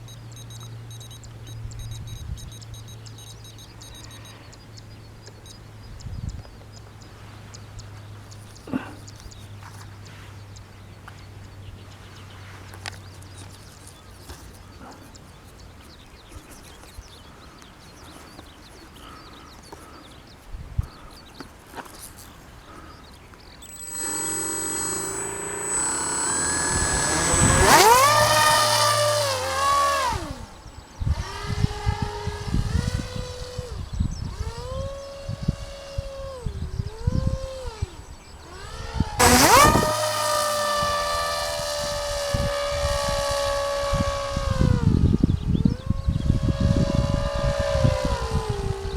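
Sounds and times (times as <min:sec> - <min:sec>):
small motor whine: 0:00.0 - 0:06.1, 0:23.6 - 0:48.9.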